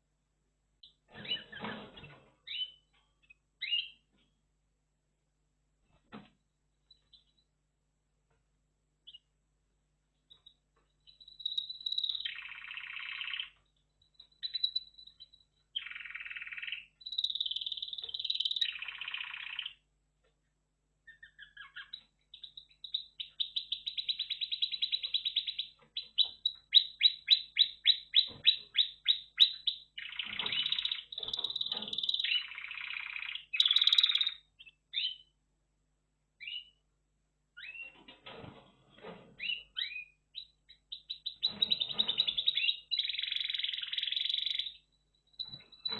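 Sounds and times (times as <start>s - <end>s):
canary singing trills: 0.8s - 4.1s, 9.0s - 9.3s, 10.2s - 19.8s, 21.0s - 35.4s, 36.4s - 36.8s, 37.6s - 38.0s, 39.4s - 45.9s.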